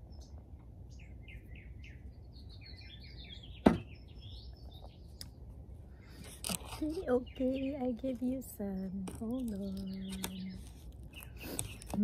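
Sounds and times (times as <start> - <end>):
low steady rumble: 0.0 - 12.0
small songbirds chirping: 0.0 - 12.0
sharp knock: 3.6 - 3.9.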